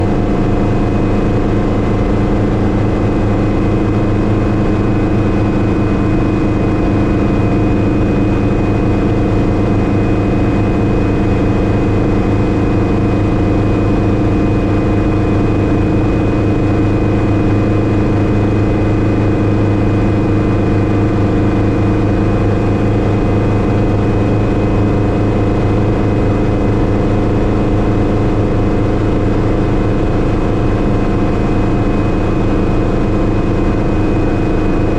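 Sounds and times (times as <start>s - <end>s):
helicopter engine and rotor drone: 0.0s - 34.9s.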